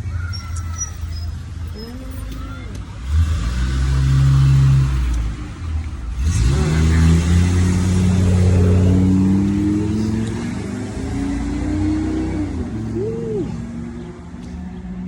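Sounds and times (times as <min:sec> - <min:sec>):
vehicle engine accelerating: 0:03.0 - 0:15.0.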